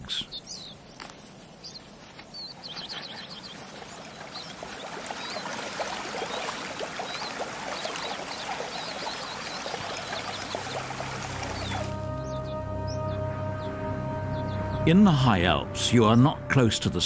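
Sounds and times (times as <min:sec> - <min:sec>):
bird chirps: 0:00.0 - 0:00.8, 0:01.6 - 0:05.5, 0:06.2 - 0:14.9
stream babbling: 0:00.0 - 0:13.0.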